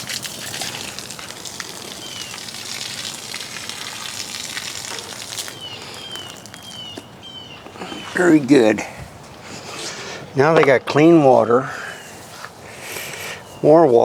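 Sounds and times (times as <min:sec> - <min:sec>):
water splashing into bird bath: 0:00.0 - 0:08.8
bird chirp: 0:01.9 - 0:02.5, 0:05.5 - 0:08.8.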